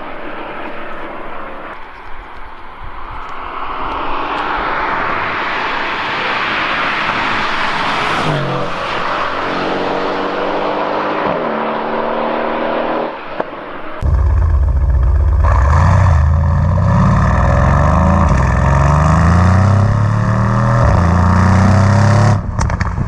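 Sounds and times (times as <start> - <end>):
road and wind noise: 0.0 - 23.0
car engine revving: 6.6 - 13.2, 14.0 - 22.8.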